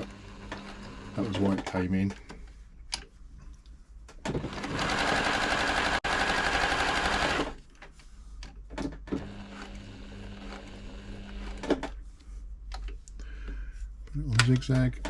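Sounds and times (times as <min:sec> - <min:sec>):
sewing machine running: 0:00.0 - 0:01.6, 0:04.3 - 0:07.6, 0:09.2 - 0:11.6
low steady hum: 0:11.9 - 0:15.0.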